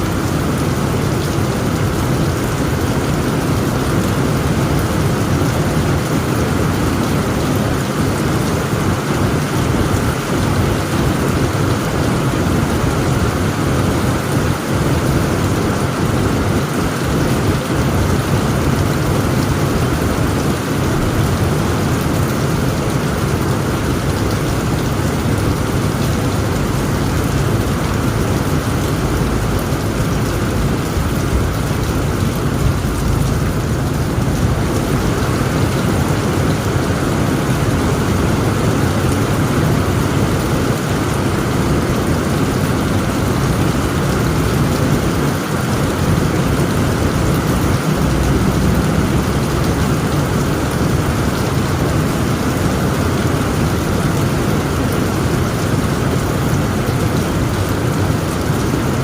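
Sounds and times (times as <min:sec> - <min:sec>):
heavy rain on a tent roof: 0:00.0 - 0:59.0
low rumble: 0:26.0 - 0:35.9, 0:47.3 - 0:51.0.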